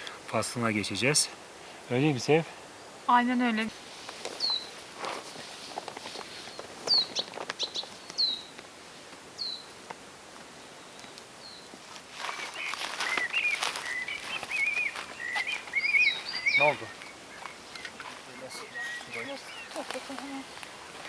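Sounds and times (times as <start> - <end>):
bird warbling song: 4.3 - 4.8, 6.3 - 8.6, 9.4 - 9.8, 12.3 - 20.6
bird falling chirp: 12.4 - 20.0.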